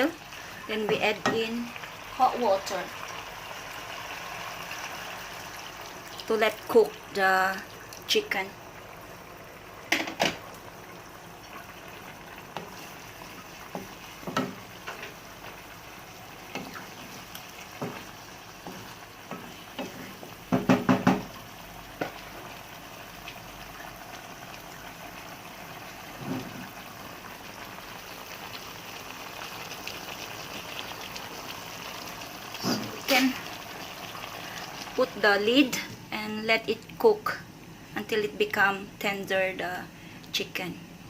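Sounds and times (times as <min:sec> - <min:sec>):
food bubbling and sizzling in pan: 0:00.0 - 0:41.0.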